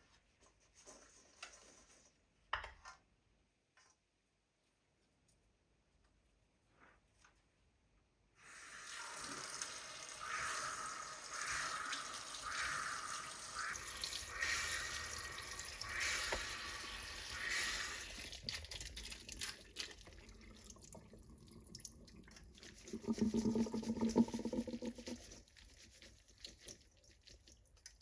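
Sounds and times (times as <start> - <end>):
water running and splashing: 8.7 - 28.0.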